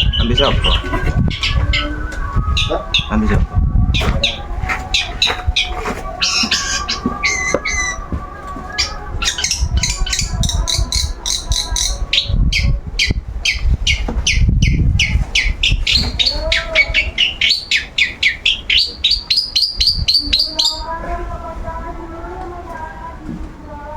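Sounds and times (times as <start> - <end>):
bird singing sharp notes: 0.0 - 4.4
low rumble: 0.0 - 6.3.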